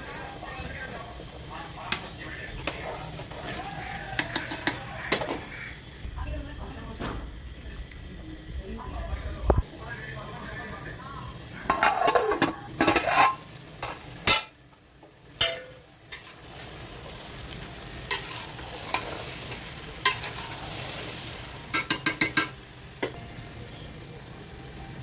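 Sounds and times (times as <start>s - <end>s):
food sizzling in a pot: 0.0s - 25.0s
utensil stirring and scraping pot: 1.6s - 5.6s, 11.6s - 14.5s, 15.4s - 17.3s, 18.1s - 22.6s.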